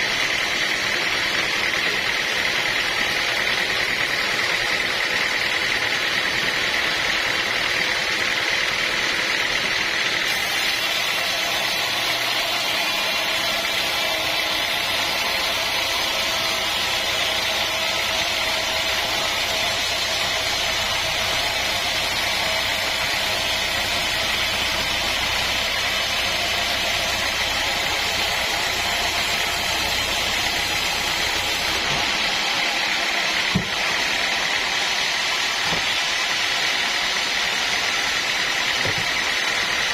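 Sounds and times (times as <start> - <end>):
sawmill machinery running: 0.0 - 39.9
sharp knock: 33.5 - 33.8.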